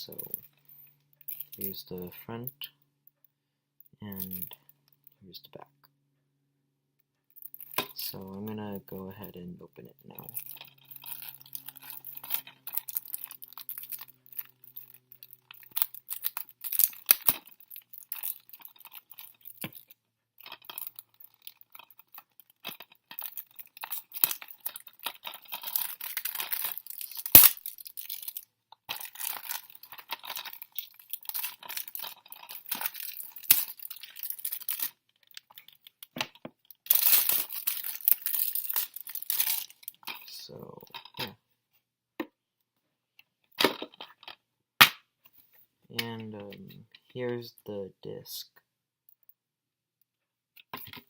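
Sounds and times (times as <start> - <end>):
plastic wrap crinkling and tearing: 10.2 - 40.3.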